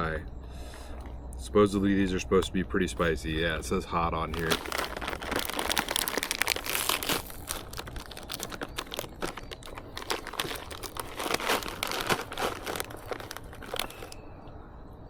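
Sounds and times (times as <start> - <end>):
plastic chip bag crinkling: 3.0 - 14.2.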